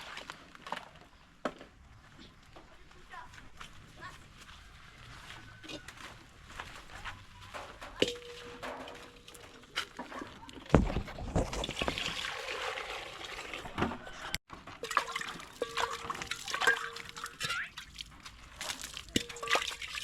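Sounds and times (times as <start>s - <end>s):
knocks and clatter: 6.6s - 12.2s
water sloshing and pouring: 6.7s - 20.0s.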